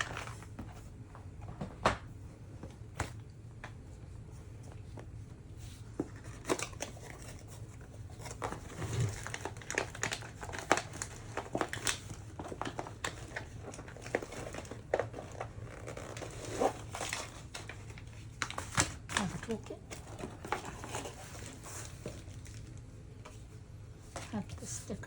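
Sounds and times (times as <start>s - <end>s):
plastic packaging crinkling: 6.2s - 23.0s.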